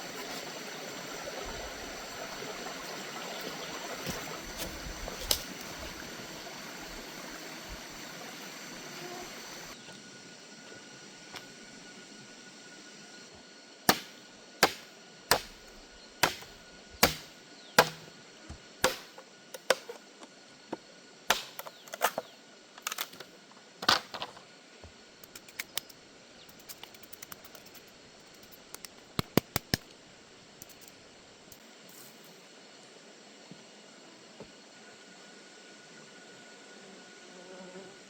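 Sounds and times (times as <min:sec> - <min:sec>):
sharp strikes: 0:13.9 - 0:15.6, 0:16.2 - 0:18.1, 0:18.8 - 0:19.9.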